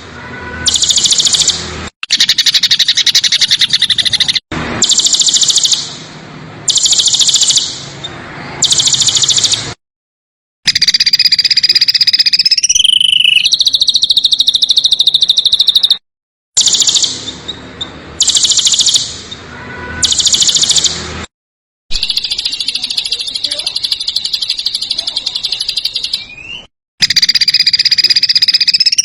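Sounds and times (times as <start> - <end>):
songbird rapid trills: 0.7 - 5.9, 27.0 - 29.0.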